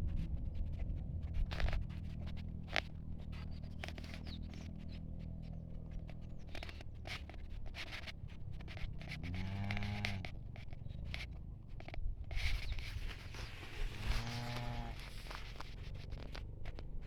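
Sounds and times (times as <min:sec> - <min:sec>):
light rustling clicks: 0:00.0 - 0:17.0
cow mooing: 0:09.2 - 0:10.3, 0:13.9 - 0:15.2.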